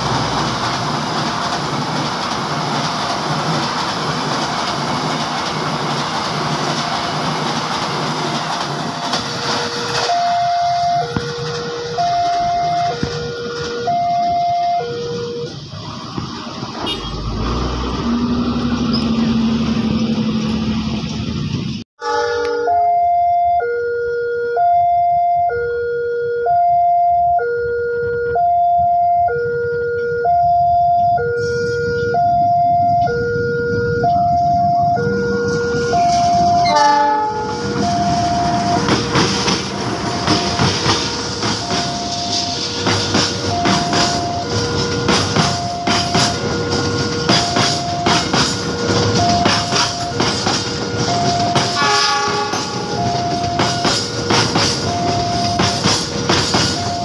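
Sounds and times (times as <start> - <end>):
wheels clattering over rail joints: 0.0 - 13.9, 37.4 - 57.0
passenger train rumbling past: 0.0 - 22.9, 30.8 - 57.0
two-tone alarm: 9.0 - 15.7, 22.0 - 57.0
train horn blast: 16.8 - 17.8, 22.0 - 22.8, 35.1 - 39.8, 43.7 - 54.5.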